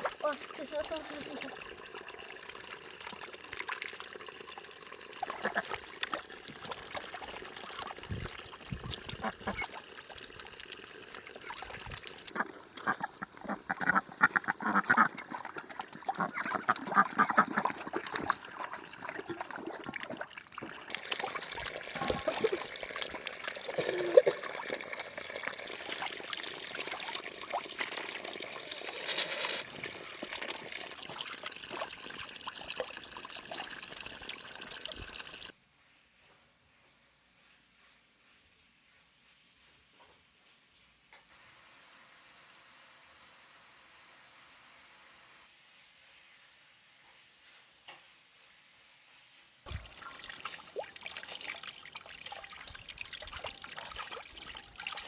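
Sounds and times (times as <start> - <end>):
trickling water: 0.0 - 35.6, 49.6 - 55.0.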